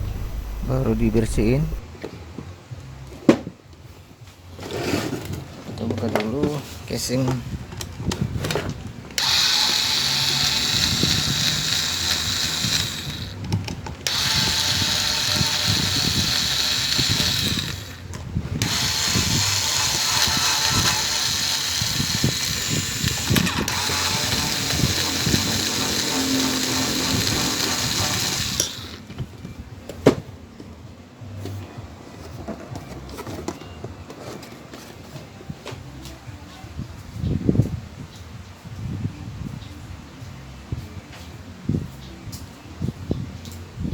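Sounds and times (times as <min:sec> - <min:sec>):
power drill running: 0:00.0 - 0:01.8, 0:09.2 - 0:13.4, 0:14.1 - 0:29.1.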